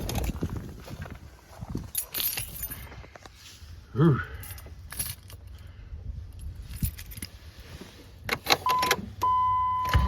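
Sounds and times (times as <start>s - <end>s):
car keys jangling: 1.8s - 3.0s, 4.4s - 5.7s, 6.3s - 7.4s
dashboard warning tone: 8.6s - 10.0s.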